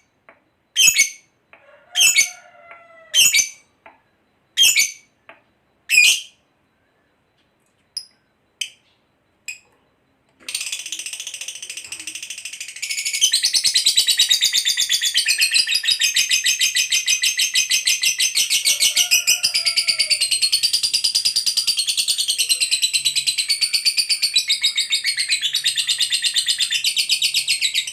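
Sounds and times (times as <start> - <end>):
lovebird chirping and trilling: 0.8 - 1.2, 2.0 - 2.3, 3.2 - 3.7, 4.6 - 5.1, 5.9 - 6.4.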